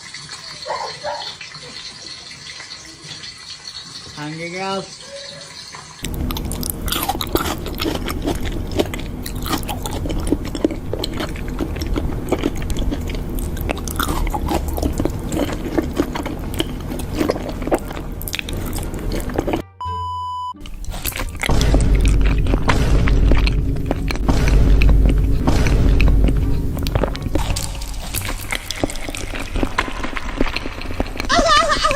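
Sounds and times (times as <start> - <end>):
wet chewing and crunching: 6.0 - 19.6, 20.6 - 31.9
steady beep tone: 19.8 - 20.6.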